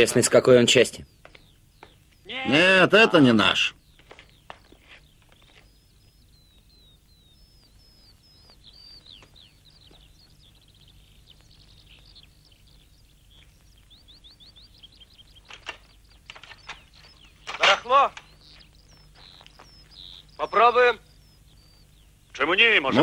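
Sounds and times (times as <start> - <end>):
faint bird chirping: 0.0 - 23.0
steady low hum: 0.0 - 23.0.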